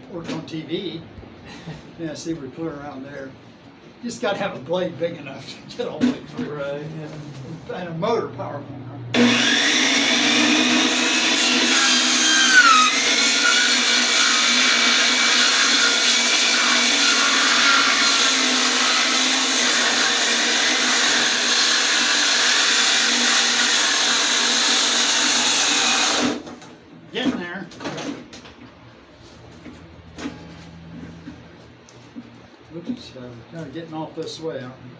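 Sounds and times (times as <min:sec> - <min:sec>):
electric saw cutting log: 0:09.1 - 0:26.5.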